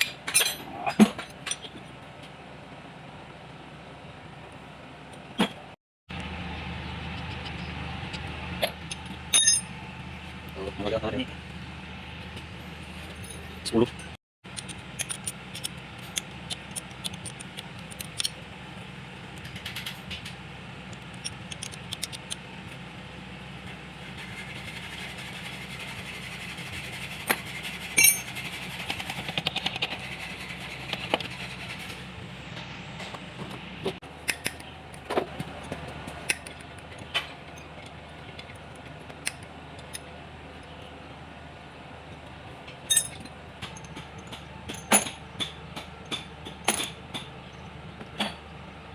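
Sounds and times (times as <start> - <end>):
metal tools clinking and tapping: 0.0 - 1.9, 8.6 - 9.8, 13.0 - 18.4, 28.0 - 28.3, 35.6 - 40.9, 42.2 - 48.4
metal clanks: 42.6 - 47.3.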